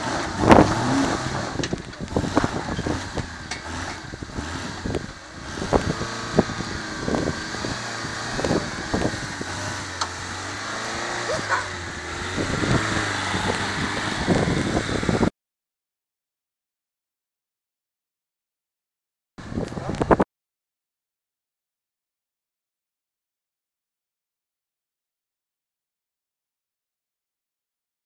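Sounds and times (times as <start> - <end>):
engine running at low revs: 0.0 - 15.3, 19.4 - 20.2.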